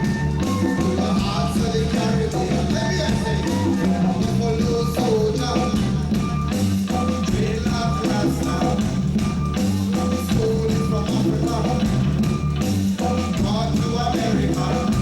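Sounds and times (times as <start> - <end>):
live reggae band playing: 0.0 - 15.0.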